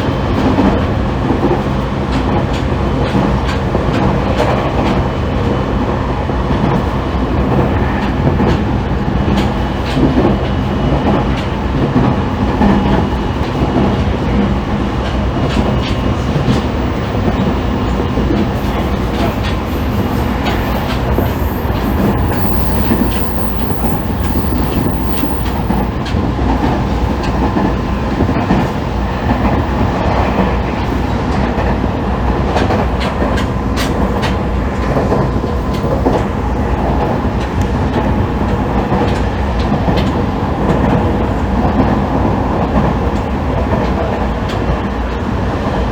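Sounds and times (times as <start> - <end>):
faint electric motor tones: 21.0 - 26.0.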